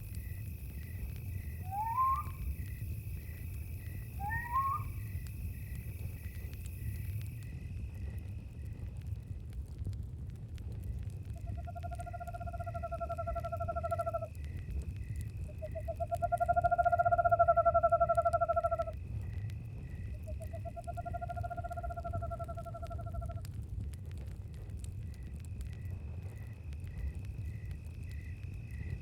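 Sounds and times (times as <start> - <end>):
crickets chirping: 0.0 - 9.6, 10.7 - 23.6, 24.5 - 29.0
campfire crackling: 0.0 - 29.0
owl trilled calls: 1.6 - 2.8, 4.2 - 5.1.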